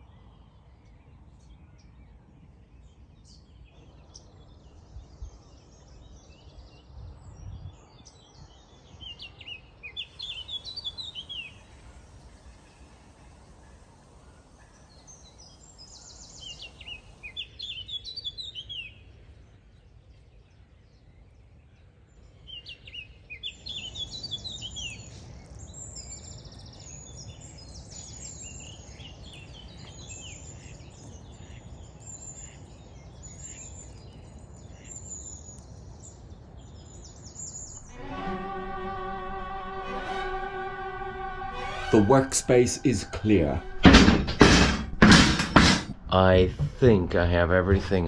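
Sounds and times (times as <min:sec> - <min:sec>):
songbirds chirping and trilling: 0:00.0 - 0:41.4
violin-led music: 0:37.8 - 0:45.2.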